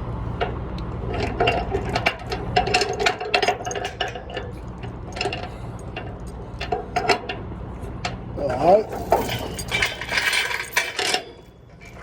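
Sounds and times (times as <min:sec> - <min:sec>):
metal chain clinking and rattling: 0:08.4 - 0:12.0.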